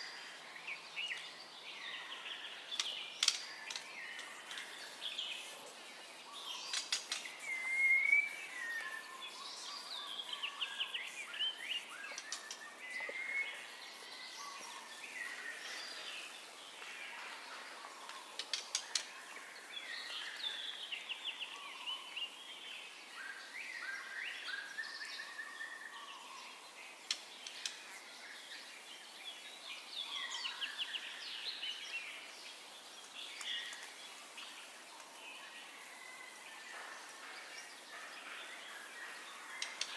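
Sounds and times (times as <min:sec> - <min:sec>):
steady hiss: 0:02.5 - 0:23.8
bird singing whistles and trills: 0:06.4 - 0:15.2.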